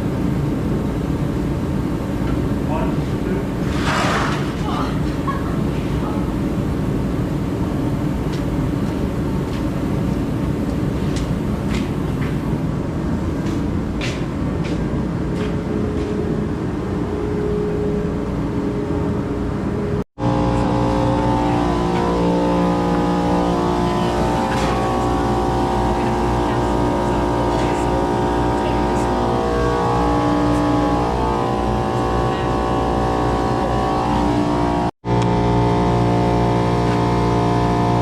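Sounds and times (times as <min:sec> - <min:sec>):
engine running with heavy rumble: 0:00.0 - 0:38.0
steady pitched engine hum: 0:00.0 - 0:38.0.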